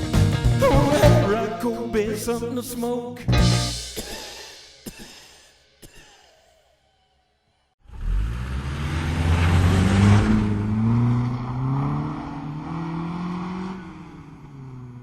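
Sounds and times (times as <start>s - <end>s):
car engine accelerating: 7.8s - 15.0s.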